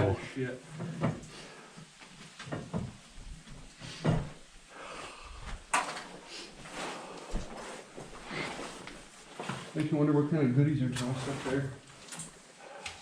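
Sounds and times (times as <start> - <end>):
knocks and scrapes: 2.2 - 4.5, 5.7 - 10.0.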